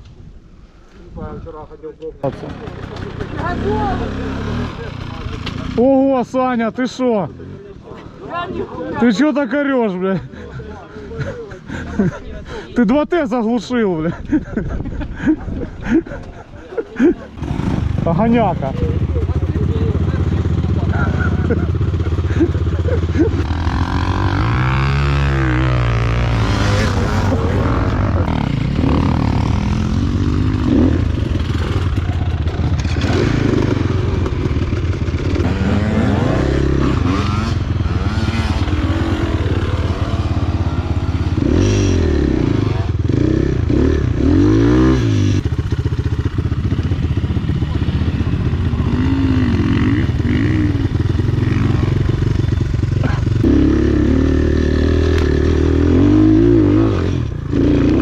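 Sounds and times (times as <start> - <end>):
dirt bike engine revving: 2.2 - 6.0, 17.3 - 58.0.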